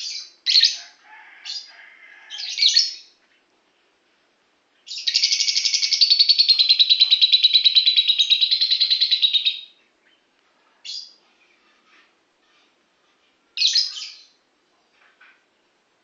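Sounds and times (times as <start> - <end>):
bird chattering trill: 4.9 - 9.7.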